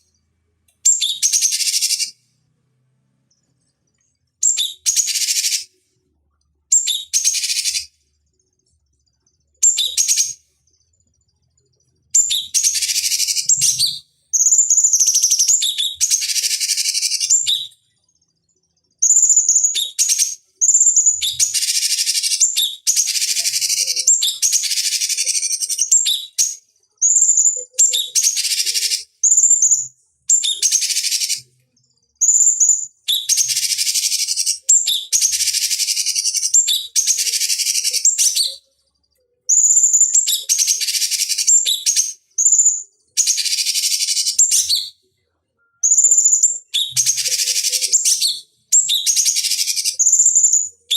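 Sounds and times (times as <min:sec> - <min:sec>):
songbird whistling and chattering: 0:00.8 - 0:02.2, 0:04.4 - 0:05.7, 0:06.7 - 0:07.9, 0:09.6 - 0:10.4, 0:12.1 - 0:17.8, 0:19.0 - 0:31.6, 0:32.2 - 0:38.7, 0:39.5 - 0:45.0, 0:45.6 - 0:50.9.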